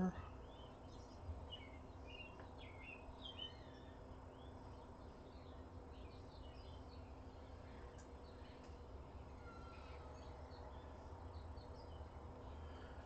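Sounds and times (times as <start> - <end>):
low background rumble: 0.0 - 13.0
bird chirps: 0.4 - 7.4, 9.4 - 12.8.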